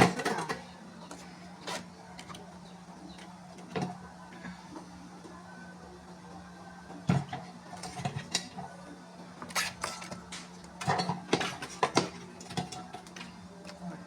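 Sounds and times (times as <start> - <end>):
corn knocking against metal pot: 9.9 - 13.2.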